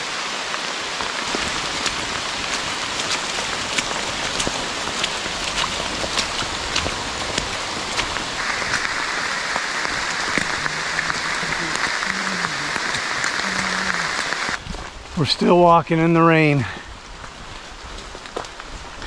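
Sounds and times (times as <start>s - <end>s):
rain falling through foliage: 0.0s - 19.0s
raindrops tapping close by: 0.5s - 15.4s.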